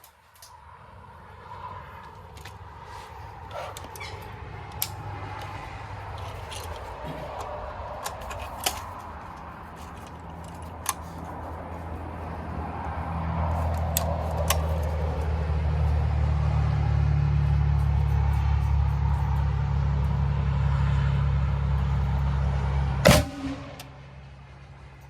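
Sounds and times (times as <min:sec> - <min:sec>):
engine running: 0:00.0 - 0:25.0.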